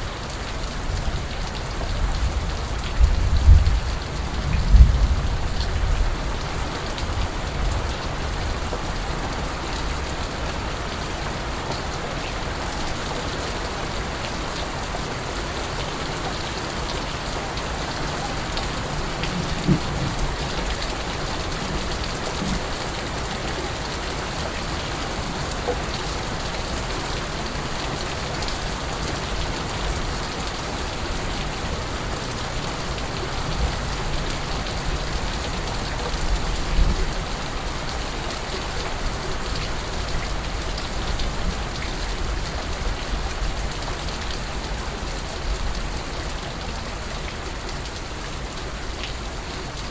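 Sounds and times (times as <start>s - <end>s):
rain on hard surfaces: 0.0s - 49.9s.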